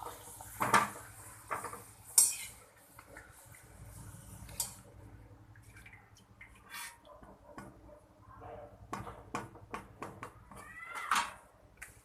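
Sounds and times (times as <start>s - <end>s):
frying sizzle in hot oil: 0.0s - 4.9s.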